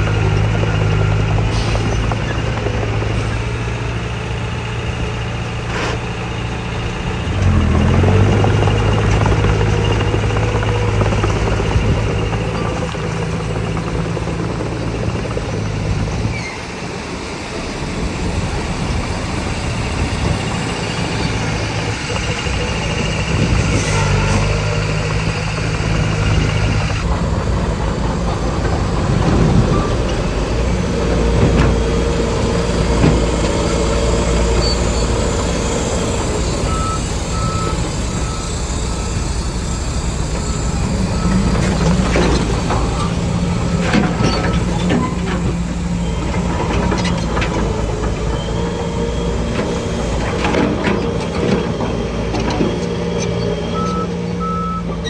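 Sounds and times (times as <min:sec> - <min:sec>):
heavy diesel engines working: 0:00.0 - 0:55.0
reversing alarm beeps: 0:36.6 - 0:41.6, 0:53.7 - 0:55.0.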